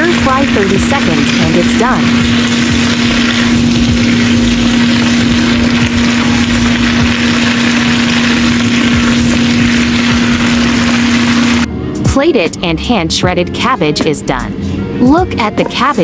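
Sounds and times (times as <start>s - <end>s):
vegetables sizzling in a wok: 0.0s - 11.7s
loud machine hum: 0.0s - 12.1s.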